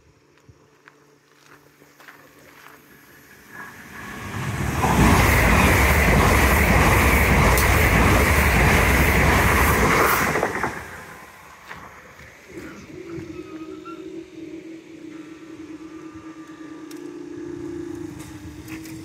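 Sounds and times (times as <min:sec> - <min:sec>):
electric train passing: 0:00.0 - 0:19.0
wheels clattering over rails: 0:03.5 - 0:12.8.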